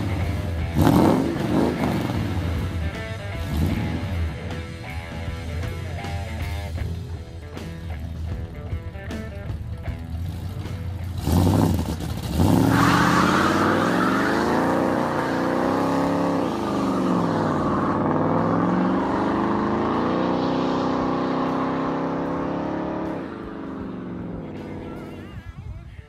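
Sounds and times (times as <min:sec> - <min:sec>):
car engine revving: 0:00.0 - 0:06.8, 0:09.8 - 0:25.2
tyres screeching: 0:12.4 - 0:19.5.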